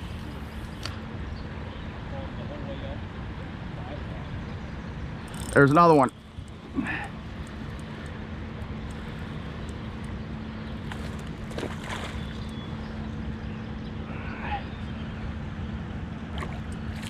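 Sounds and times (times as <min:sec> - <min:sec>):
faint clicks: 0:05.3 - 0:12.6.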